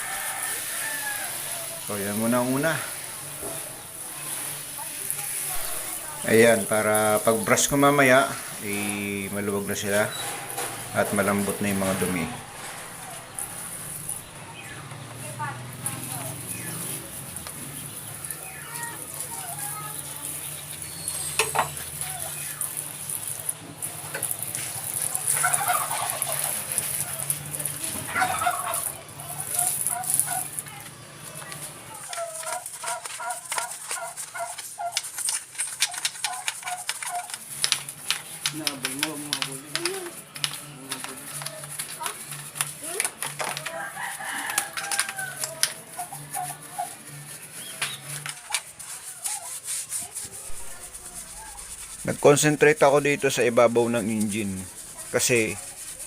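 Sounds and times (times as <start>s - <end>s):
rooster crowing: 0.0s - 1.9s, 43.6s - 47.2s
animal calls: 24.9s - 27.5s, 28.1s - 30.6s, 31.9s - 37.5s, 43.9s - 52.0s.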